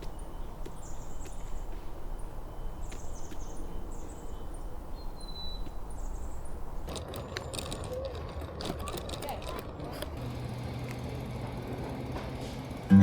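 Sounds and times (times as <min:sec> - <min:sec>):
small birds chirping: 0:00.0 - 0:09.5.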